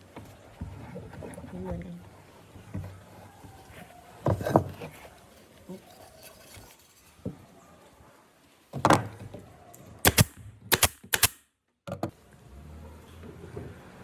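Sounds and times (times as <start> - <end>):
sharp cracks: 10.0 - 11.5.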